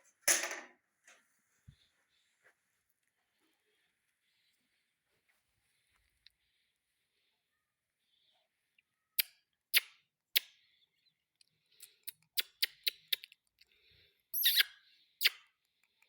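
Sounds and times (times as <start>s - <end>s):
parakeet calls and screech: 14.4s - 15.4s.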